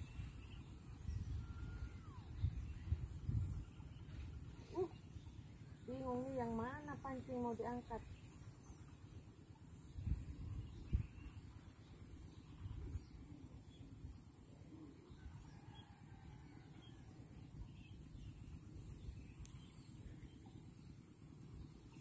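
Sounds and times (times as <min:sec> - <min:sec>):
wind rumble on microphone: 0:00.0 - 0:04.9, 0:09.8 - 0:11.6, 0:12.4 - 0:13.3.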